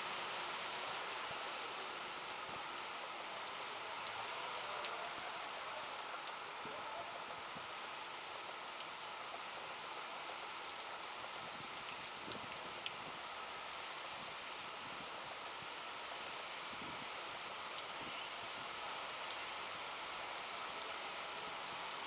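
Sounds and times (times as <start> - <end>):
rain falling steadily: 0.0 - 22.0.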